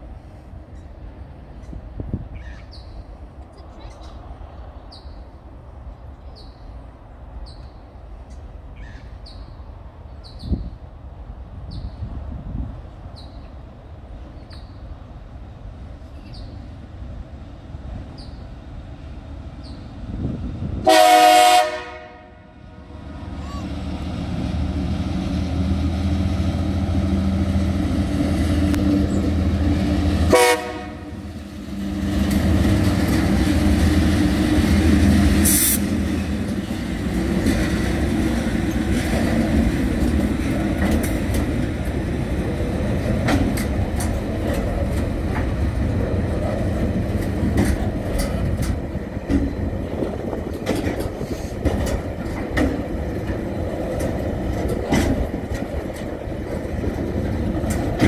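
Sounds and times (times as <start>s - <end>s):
wagons rumbling and clicking on rails: 0.0s - 58.0s
locomotive engines droning: 12.8s - 58.0s
train horn blast: 20.8s - 22.6s, 30.2s - 31.3s.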